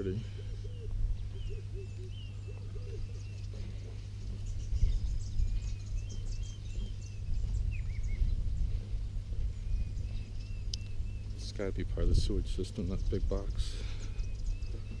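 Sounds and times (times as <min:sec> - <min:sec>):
bird cooing: 0:00.0 - 0:11.4
birds chirping: 0:00.0 - 0:15.0
steady low rumble: 0:00.0 - 0:15.0.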